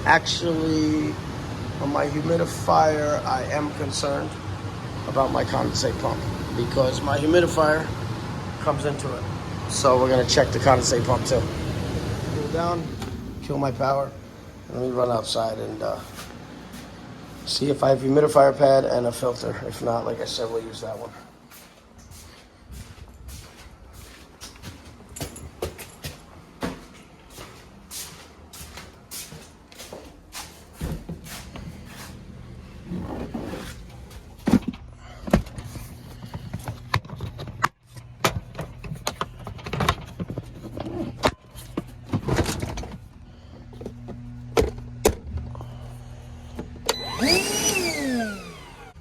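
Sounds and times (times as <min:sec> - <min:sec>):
steady low hum: 0:00.0 - 0:49.0
knocks and clatter of handling: 0:24.4 - 0:27.1, 0:32.9 - 0:45.4.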